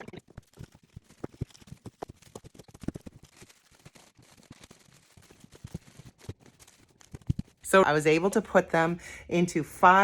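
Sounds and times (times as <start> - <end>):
packages knocking and thumping: 0.0 - 7.7.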